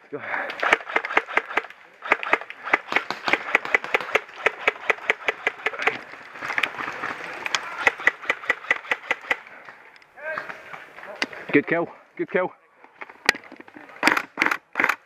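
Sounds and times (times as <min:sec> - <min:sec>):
airsoft guns firing: 0:00.5 - 0:06.0, 0:07.6 - 0:09.7.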